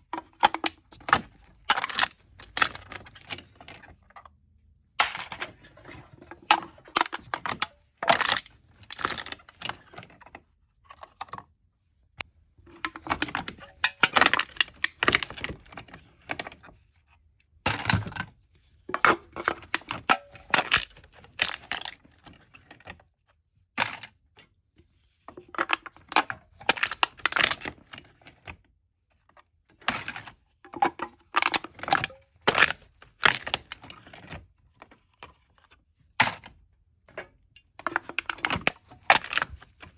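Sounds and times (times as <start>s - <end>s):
aluminium cans being crushed: 0.0s - 3.9s, 5.0s - 10.1s, 12.6s - 16.5s, 17.7s - 18.3s, 18.9s - 22.1s, 25.5s - 27.9s, 29.8s - 34.4s, 37.2s - 39.9s.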